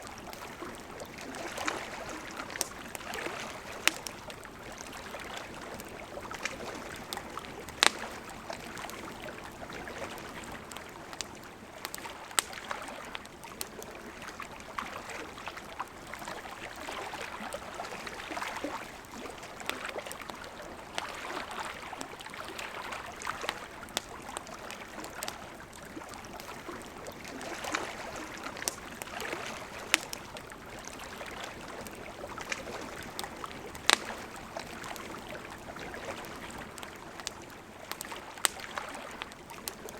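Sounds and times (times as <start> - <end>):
campfire crackling and popping: 0.0 - 39.9
river flowing: 0.0 - 39.9.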